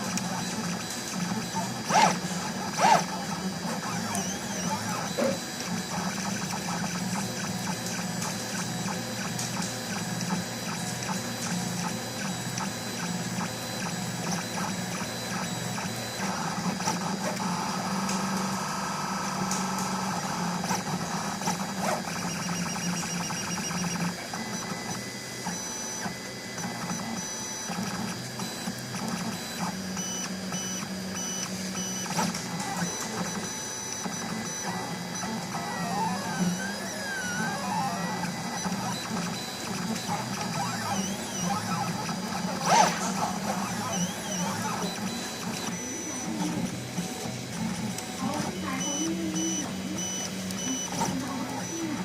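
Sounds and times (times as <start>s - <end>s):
stepper motors whining: 1.2s - 9.3s, 29.0s - 52.0s.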